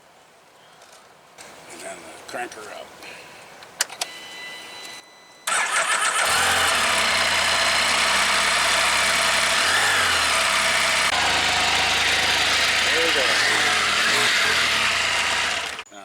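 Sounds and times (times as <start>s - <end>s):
engine starting and idling: 5.5s - 15.8s.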